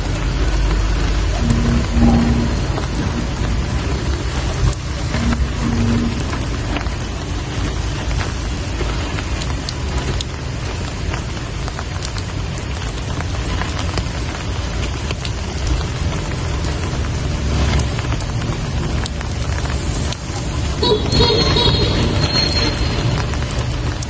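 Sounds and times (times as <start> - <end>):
sharp raindrop hits: 0.0 - 24.0
steady rain falling: 0.0 - 24.0
low rumble: 1.0 - 8.4, 17.7 - 24.0.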